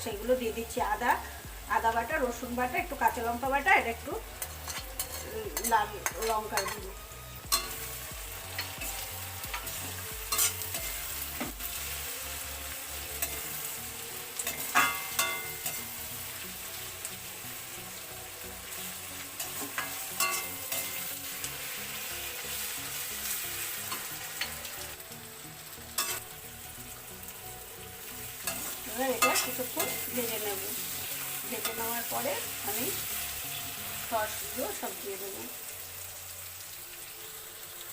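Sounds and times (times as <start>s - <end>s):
vegetables sizzling in hot oil: 0.0s - 37.9s
spatula clinking against pan: 4.4s - 6.8s, 14.4s - 15.8s, 19.4s - 21.0s, 28.5s - 30.1s.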